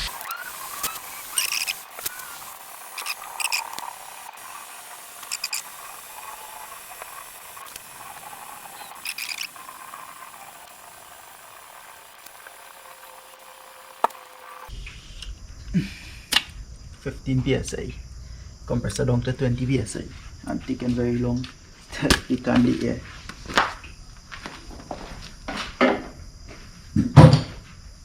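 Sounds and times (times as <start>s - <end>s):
compressed air hissing: 0.0s - 15.2s.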